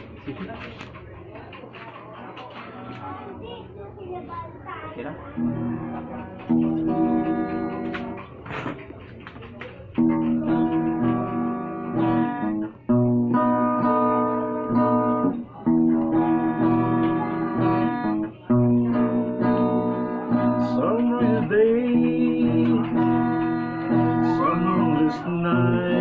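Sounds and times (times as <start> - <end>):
guitar playing chords: 5.3 - 8.5, 10.0 - 26.0.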